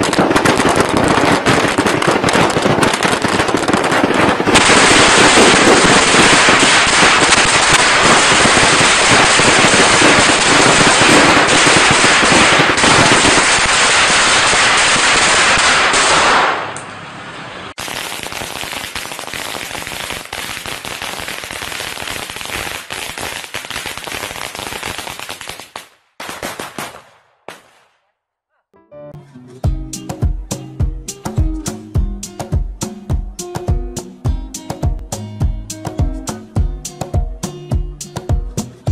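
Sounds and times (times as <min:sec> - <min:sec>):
firecrackers crackling: 0:00.0 - 0:28.1.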